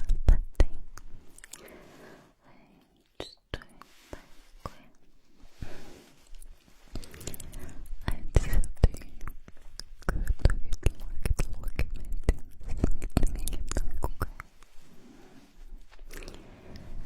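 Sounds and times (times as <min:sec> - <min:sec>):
soft hiss: 0:00.2 - 0:12.3, 0:13.4 - 0:17.0
wet lip and tongue clicks: 0:09.5 - 0:14.5.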